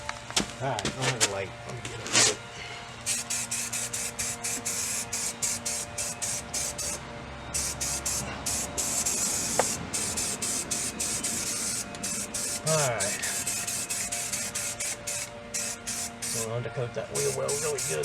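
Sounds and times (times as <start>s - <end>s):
aerosol can spraying bursts: 3.0s - 7.0s, 7.6s - 16.5s, 17.1s - 18.0s.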